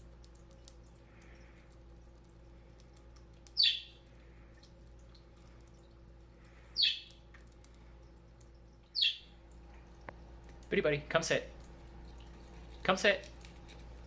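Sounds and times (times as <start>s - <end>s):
budgerigar chirps: 3.6s - 3.9s, 6.8s - 7.1s, 9.0s - 9.3s.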